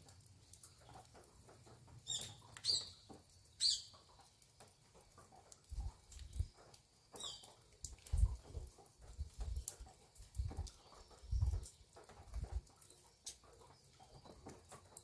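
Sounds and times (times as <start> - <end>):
birds chirping: 0.4 - 4.8, 6.3 - 7.6.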